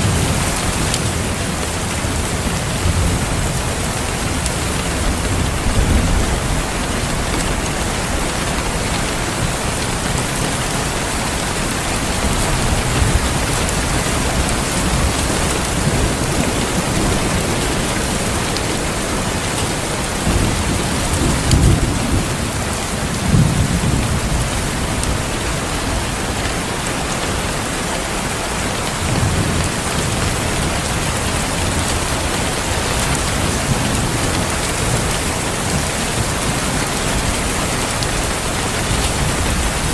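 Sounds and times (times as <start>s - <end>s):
thunder rumbling: 0.0s - 26.8s
heavy rain: 0.0s - 39.9s.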